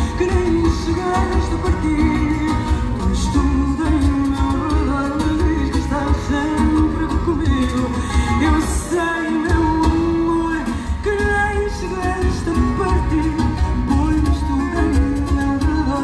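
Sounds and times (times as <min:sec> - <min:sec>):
band playing live: 0:00.0 - 0:16.0
plucked strings: 0:00.0 - 0:16.0.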